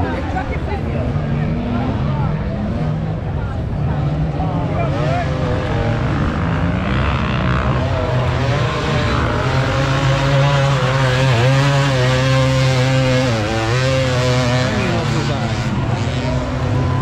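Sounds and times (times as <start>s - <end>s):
dirt bike engine revving: 3.8s - 17.0s.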